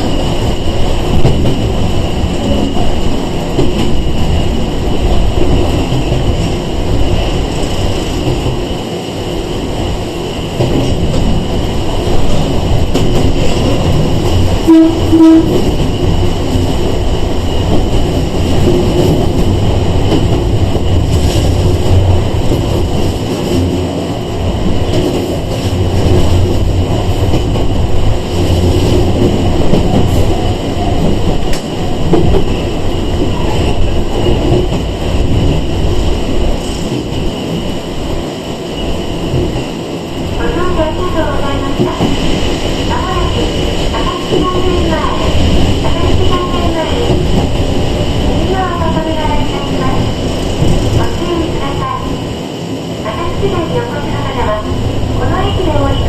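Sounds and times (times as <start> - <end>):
train motor and wheel rumble: 0.0 - 56.0
train horn toots: 14.6 - 15.6
rail-joint clicks: 24.6 - 35.6.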